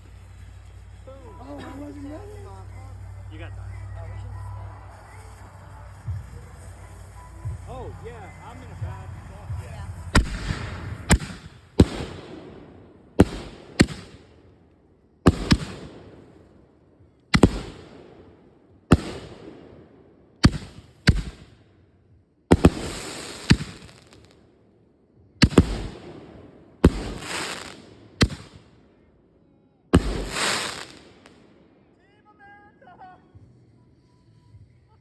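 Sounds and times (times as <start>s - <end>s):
firework mortar bangs with crackle: 0.0s - 14.5s, 15.2s - 16.6s, 17.3s - 21.6s, 22.5s - 24.4s, 25.4s - 28.8s, 30.0s - 31.6s.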